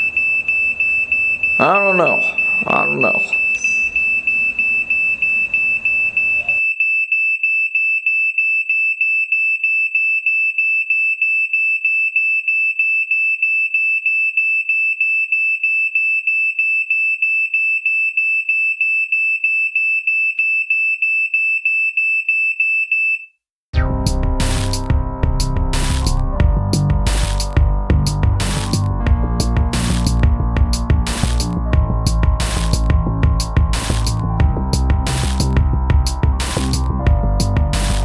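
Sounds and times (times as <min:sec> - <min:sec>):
smoke alarm beeping: 0:00.0 - 0:23.3.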